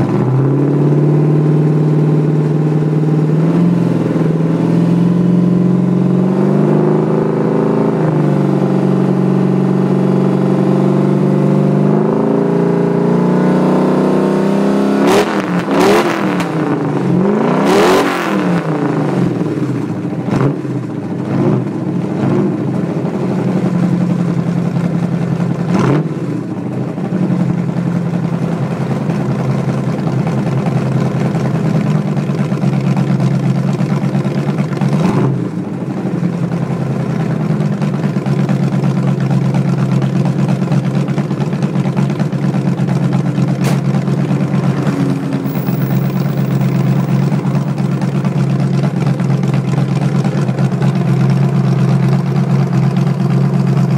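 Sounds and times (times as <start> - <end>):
vee eight engine choppy idle: 18.6 - 53.9.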